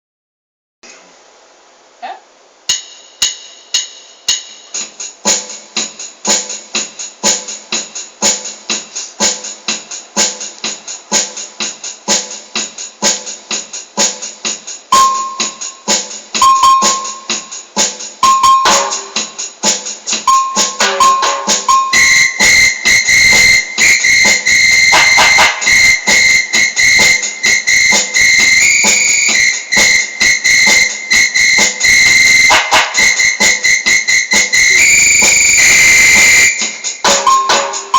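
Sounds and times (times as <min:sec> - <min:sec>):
electronic keyboard percussion beat: 0:02.6 - 0:37.9
short keyboard notes: 0:14.9 - 0:15.8, 0:16.4 - 0:17.5
shrill whistle-like tone: 0:14.9 - 0:17.6, 0:18.2 - 0:19.1, 0:20.3 - 0:37.9.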